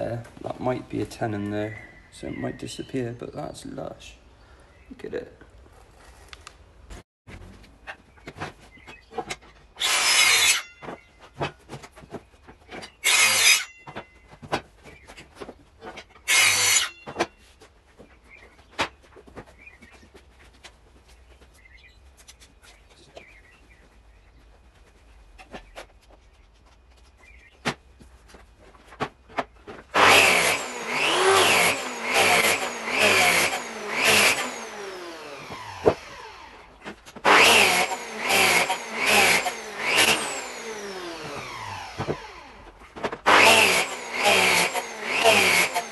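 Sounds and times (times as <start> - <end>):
power tool bursts on wood: 29.9 - 42.6, 43.2 - 45.9.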